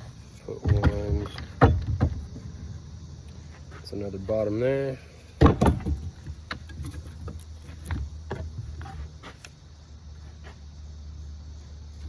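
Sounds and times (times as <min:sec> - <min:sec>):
parts knocking and clicking: 0:00.6 - 0:02.5, 0:05.4 - 0:09.6.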